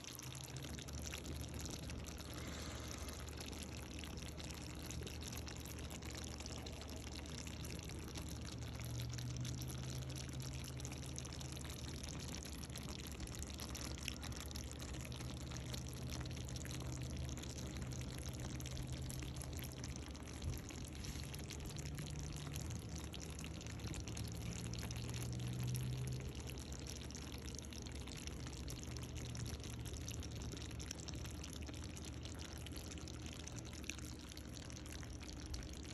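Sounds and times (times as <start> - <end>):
watery hiss of liquid: 2.2 - 3.8, 20.8 - 21.6.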